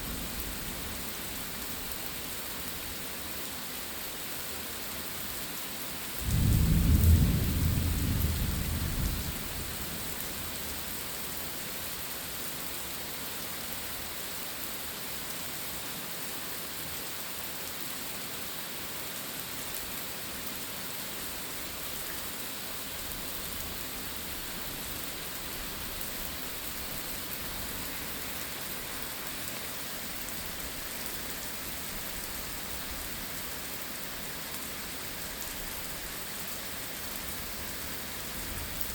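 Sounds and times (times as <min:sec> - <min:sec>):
steady rain: 0:00.0 - 0:38.9
thunder rumble: 0:06.2 - 0:09.8.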